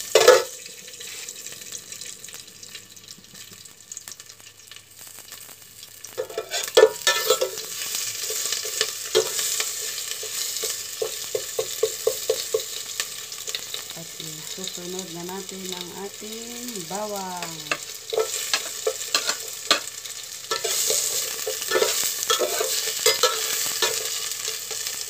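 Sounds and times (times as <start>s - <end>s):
ginger sizzling in oil: 0.0s - 25.0s
turner tapping a pot: 0.1s - 0.6s, 6.2s - 13.0s, 16.9s - 19.9s, 20.5s - 24.8s
metal turner scraping a pot: 0.1s - 1.3s, 6.1s - 12.8s, 17.7s - 19.9s, 20.5s - 24.8s.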